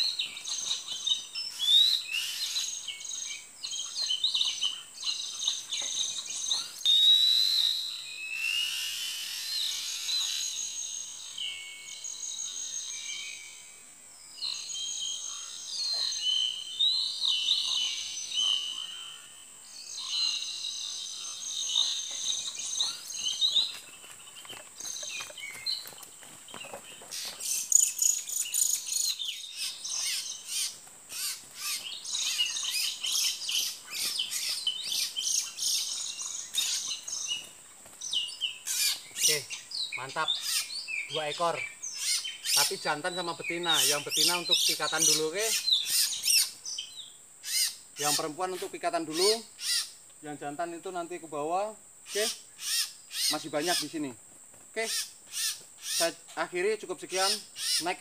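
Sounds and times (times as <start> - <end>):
bird song whistles and chirps: 0.0 - 13.6
high insect whine: 0.0 - 58.0
bird ticking and chattering: 20.0 - 50.0.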